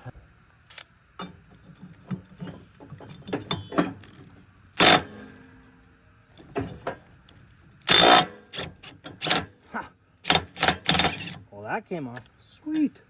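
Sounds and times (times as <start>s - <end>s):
tool handling clicks: 0.7s - 1.3s
impact wrench hammering: 4.8s - 5.6s, 7.9s - 9.5s, 10.3s - 11.4s.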